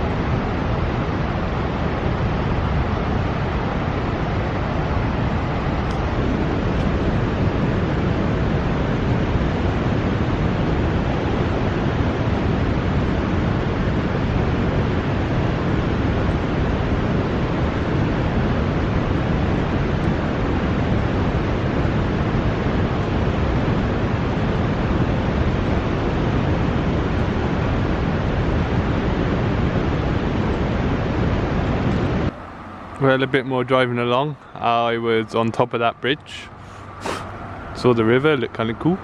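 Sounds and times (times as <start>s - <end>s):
river water rushing: 36.5s - 37.9s.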